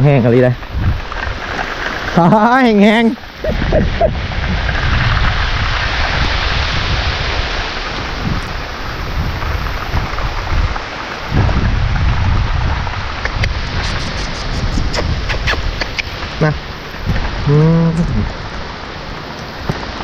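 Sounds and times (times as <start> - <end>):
heavy rain pouring: 0.0 - 20.0
low rumble: 3.4 - 19.3.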